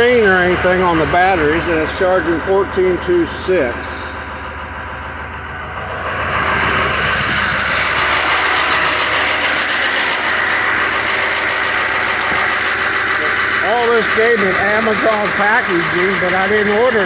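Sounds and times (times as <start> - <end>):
diesel engine idling with clatter: 0.0 - 17.0.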